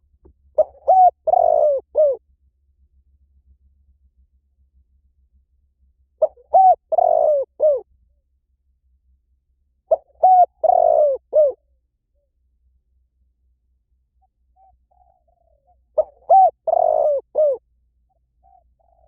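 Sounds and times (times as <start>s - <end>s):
dove cooing: 0.6s - 2.2s, 6.2s - 7.9s, 9.9s - 11.6s, 14.2s - 19.0s.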